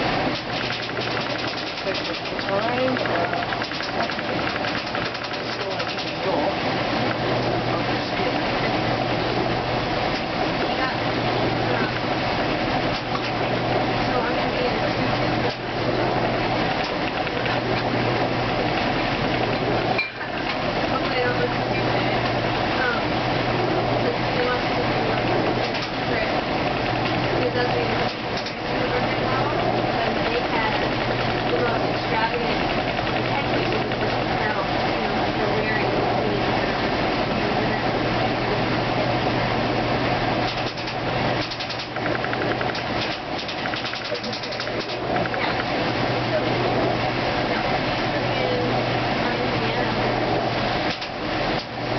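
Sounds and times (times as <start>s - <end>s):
washing machine spin cycle: 0.0s - 51.9s
fast even ticking: 0.3s - 6.3s, 32.3s - 34.4s, 40.4s - 45.8s.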